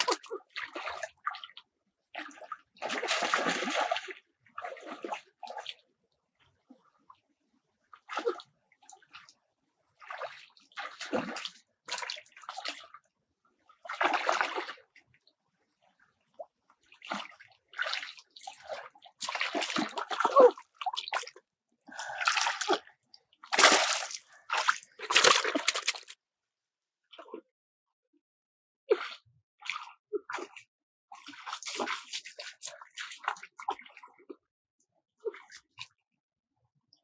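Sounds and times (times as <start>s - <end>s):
water sloshing and splashing: 0.0s - 1.1s, 2.2s - 5.7s, 17.1s - 22.8s, 23.5s - 26.2s, 31.2s - 33.8s.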